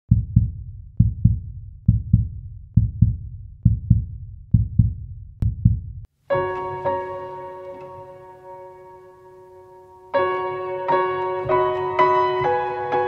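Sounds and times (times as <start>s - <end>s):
heartbeat thumps: 0.1s - 6.1s
sustained piano chord: 6.3s - 13.0s.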